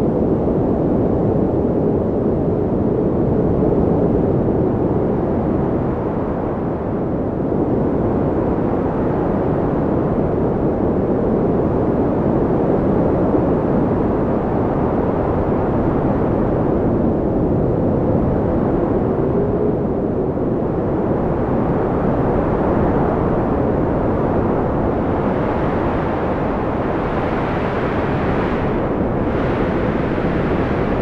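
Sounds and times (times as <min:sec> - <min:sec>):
faint wind whistling: 0:04.3 - 0:31.0
wind blowing: 0:14.0 - 0:31.0.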